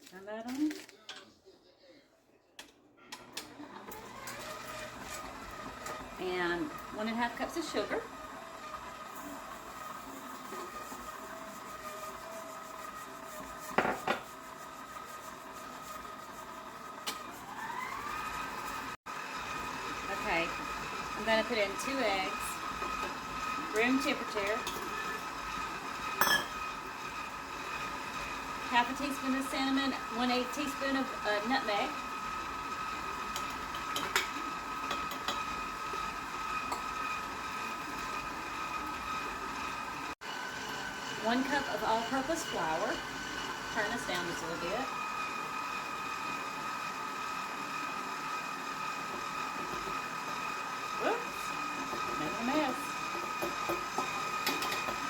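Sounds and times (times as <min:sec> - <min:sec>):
electric mixer running: 0:03.2 - 0:55.0
utensils clinking against bowl: 0:24.5 - 0:25.1, 0:26.2 - 0:26.6, 0:33.3 - 0:35.5, 0:53.4 - 0:55.0.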